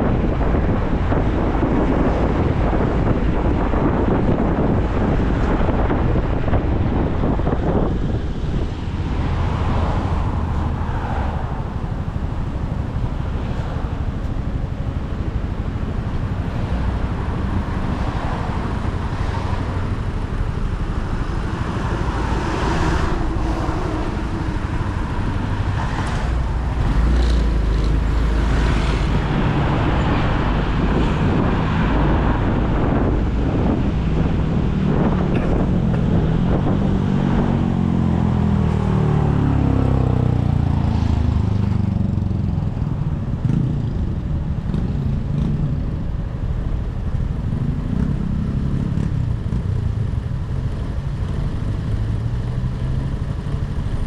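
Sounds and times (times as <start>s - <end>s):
wind and road noise: 0.0s - 54.0s
motorcycle engine running: 11.9s - 29.4s.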